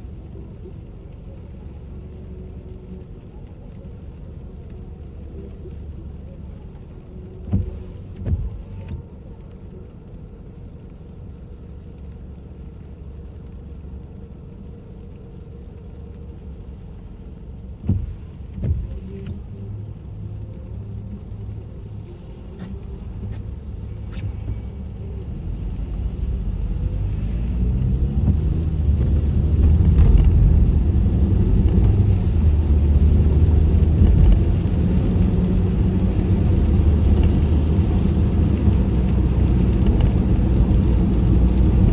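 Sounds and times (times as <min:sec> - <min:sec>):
car engine and road rumble: 0:00.0 - 0:41.9.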